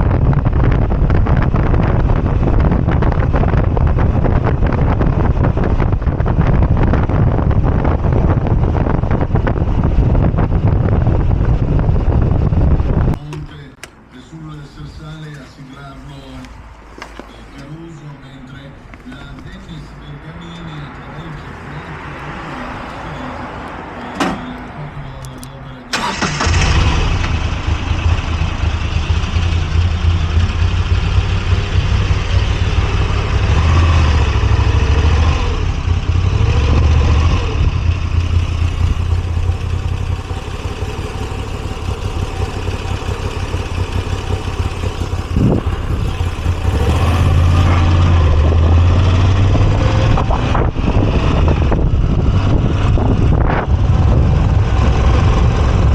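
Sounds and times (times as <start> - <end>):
motorcycle engine throbbing: 0.0 - 13.8, 26.2 - 55.9
motorcycle starter clicks: 25.2 - 27.4, 41.2 - 47.8.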